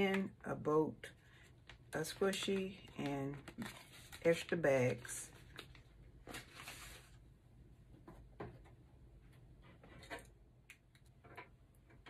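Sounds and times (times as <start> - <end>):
plastic packet rustling: 1.8 - 7.2.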